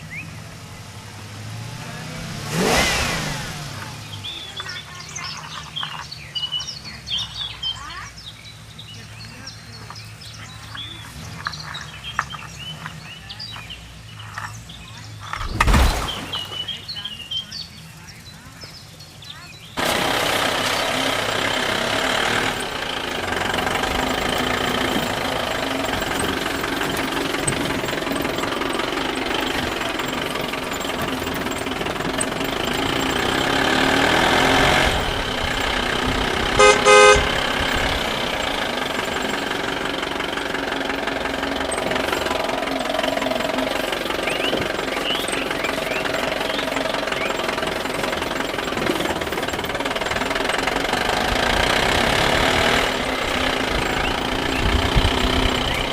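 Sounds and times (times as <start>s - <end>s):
heavy vehicle engine running: 0.0s - 55.9s
horn toots: 19.8s - 39.7s.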